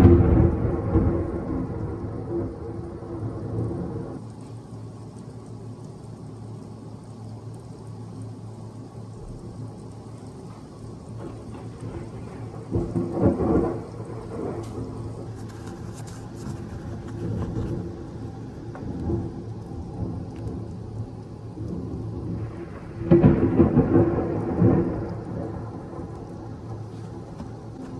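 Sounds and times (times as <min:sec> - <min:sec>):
loud thunder peal: 0:00.0 - 0:04.2, 0:11.2 - 0:15.3, 0:21.8 - 0:26.6
thunder rumbling: 0:00.0 - 0:04.2, 0:09.2 - 0:27.9
steady rain: 0:00.0 - 0:27.9.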